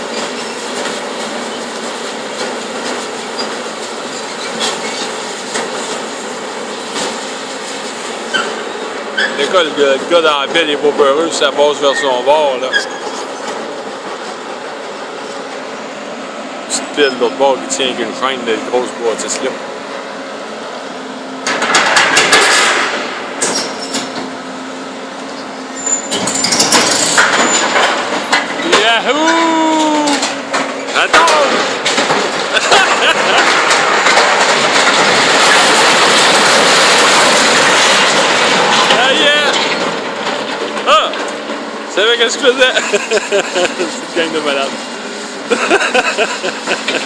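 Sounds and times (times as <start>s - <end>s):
excavator engine hum: 0.0s - 47.0s
heavy machinery grinding metal: 0.0s - 47.0s
metal squeals: 3.4s - 5.2s, 8.2s - 13.6s, 16.9s - 18.1s, 23.4s - 24.2s, 25.2s - 31.8s
high metallic squeal: 11.7s - 13.5s, 25.3s - 27.8s
metal clanking and crashing: 21.4s - 24.3s, 25.8s - 44.8s.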